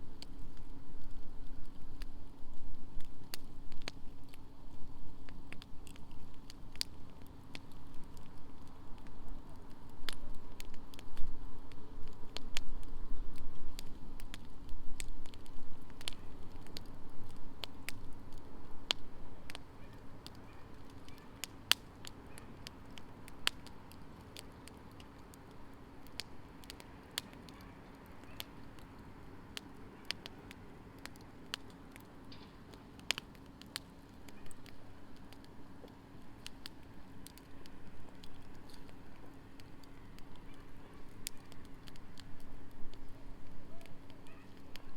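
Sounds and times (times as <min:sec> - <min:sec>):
faint steady hum: 0:00.0 - 0:44.9
wood fire crackling and popping: 0:00.0 - 0:44.9.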